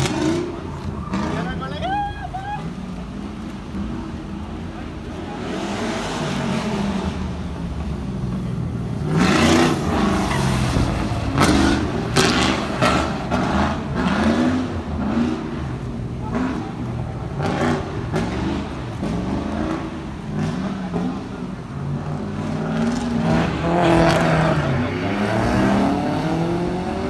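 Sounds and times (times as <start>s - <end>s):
engine revving hard: 8.9s - 27.0s.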